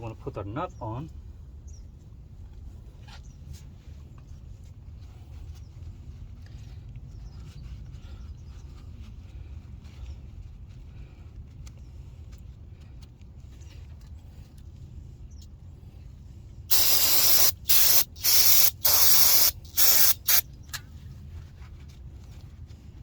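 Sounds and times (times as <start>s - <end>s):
aerosol spray can hissing: 16.7s - 20.4s.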